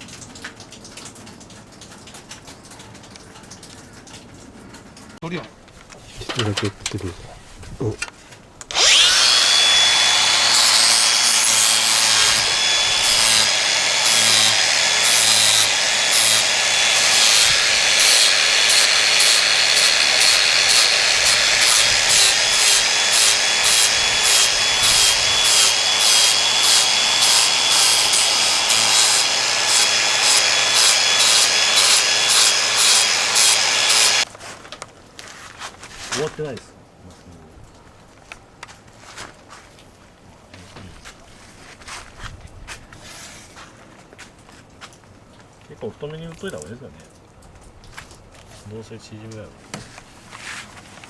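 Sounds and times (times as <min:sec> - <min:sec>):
power tool motor whining: 0:08.7 - 0:34.3.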